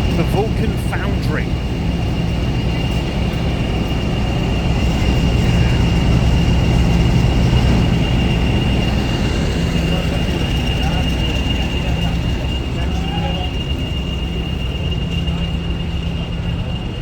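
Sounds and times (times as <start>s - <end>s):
diesel locomotive idling: 0.0s - 17.0s.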